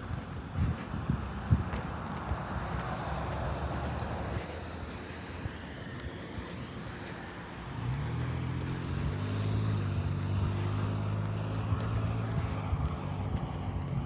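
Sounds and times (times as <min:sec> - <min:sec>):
motor engine droning: 0:03.2 - 0:14.0.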